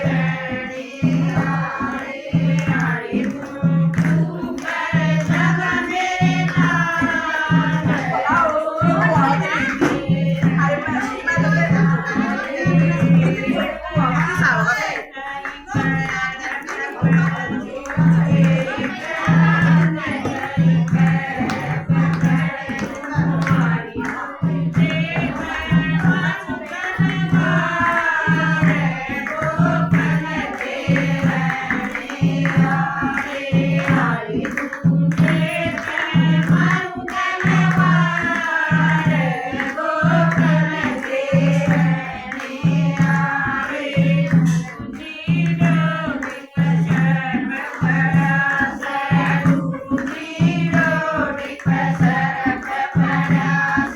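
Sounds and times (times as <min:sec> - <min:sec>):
tambourine: 0:00.0 - 0:14.7, 0:15.5 - 0:53.9
group singing devotional song: 0:00.0 - 0:53.9
low drum beat: 0:05.6 - 0:15.0.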